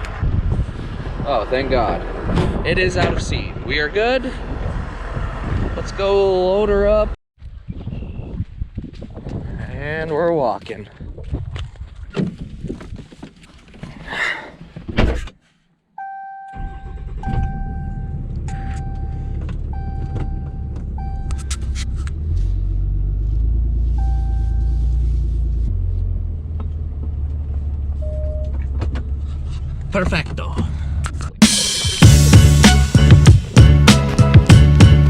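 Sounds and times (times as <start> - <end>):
vehicle engine rumbling: 0.0 - 7.2, 16.5 - 35.0
electronic warning beeps: 16.0 - 21.5.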